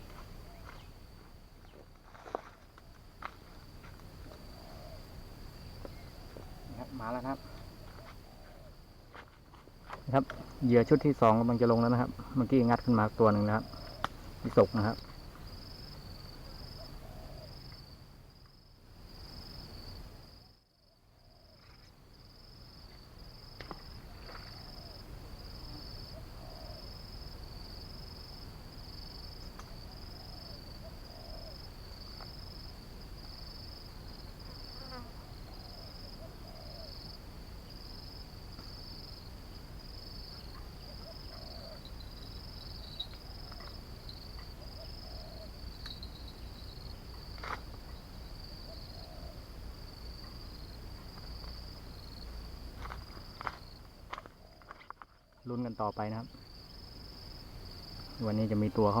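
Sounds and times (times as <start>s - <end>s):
insect chirping: 0.0s - 59.0s.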